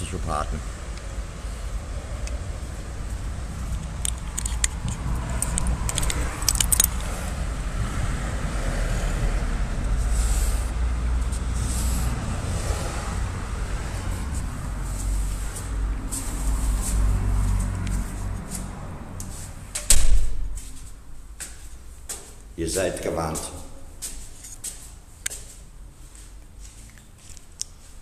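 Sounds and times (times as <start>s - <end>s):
steady low rumble: 0.0s - 24.0s
metallic clinks and jingles: 5.4s - 7.1s.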